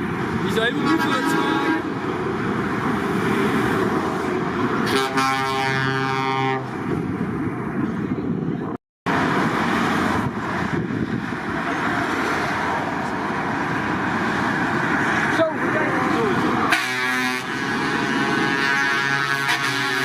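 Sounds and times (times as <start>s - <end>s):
truck engines and traffic: 0.0s - 20.0s
truck air horn: 0.8s - 2.0s, 4.8s - 6.8s, 16.7s - 20.0s.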